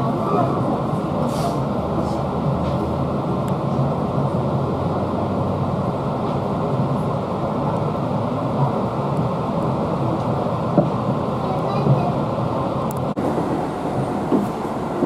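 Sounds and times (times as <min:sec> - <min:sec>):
train wheels rumbling on rail: 0:00.0 - 0:15.0
short hiss: 0:01.2 - 0:01.6.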